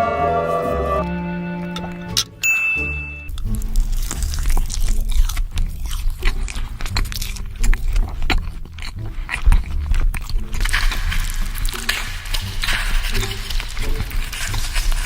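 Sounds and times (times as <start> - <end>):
person chewing crunchy food: 3.3 - 15.0.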